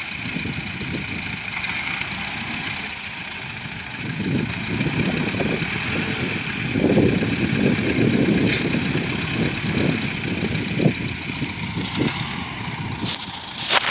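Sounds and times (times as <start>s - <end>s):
tractor diesel engine running: 0.0s - 13.9s.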